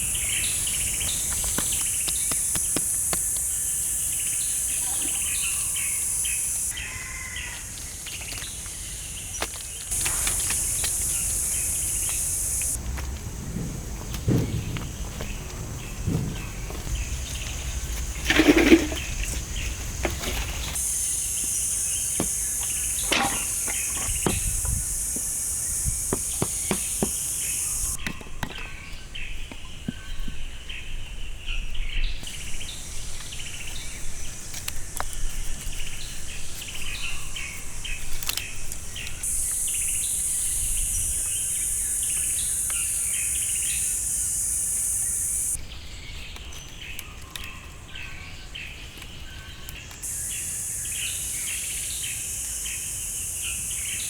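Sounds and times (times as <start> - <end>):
high insect drone: 0.0 - 28.0, 32.0 - 45.8, 49.4 - 54.0
birds chirping: 0.0 - 54.0
sharp knocks: 12.6 - 19.4.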